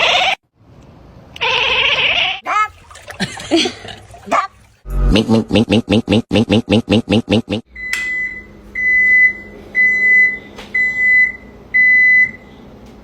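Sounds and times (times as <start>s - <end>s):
appliance beeper beeping: 7.7s - 12.4s.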